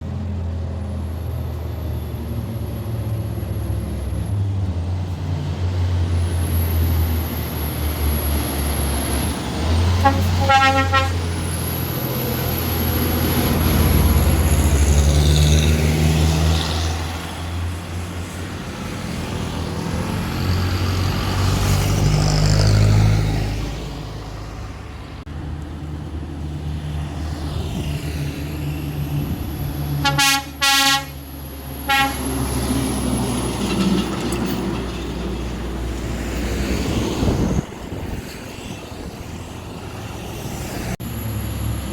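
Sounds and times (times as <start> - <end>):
heavy diesel engines droning: 0.0 - 41.9
vehicle horn blast: 10.0 - 11.3, 30.0 - 31.2, 31.8 - 32.3.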